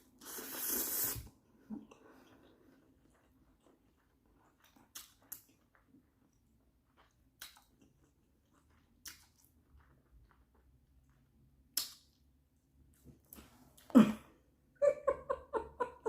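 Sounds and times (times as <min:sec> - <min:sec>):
person chewing noodles: 0:00.0 - 0:12.2
wet lip smacks: 0:07.4 - 0:07.7, 0:09.0 - 0:09.5, 0:11.8 - 0:12.2.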